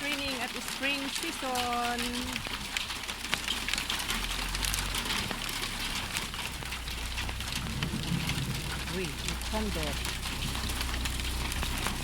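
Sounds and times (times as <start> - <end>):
hail ticking on surfaces: 0.0 - 12.0
low rumble: 4.2 - 12.0.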